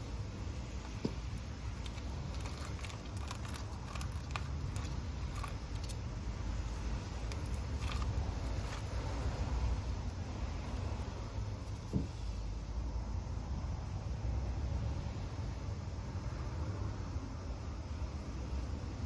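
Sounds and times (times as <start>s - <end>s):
light clicks and crackles: 0.7s - 6.1s, 6.7s - 12.1s.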